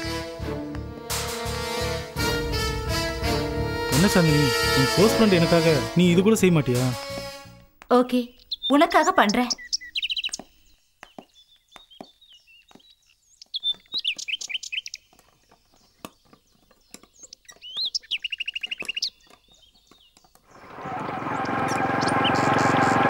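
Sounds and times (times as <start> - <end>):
steady rushing sound: 2.2 - 6.1
birds chirping: 7.9 - 23.0.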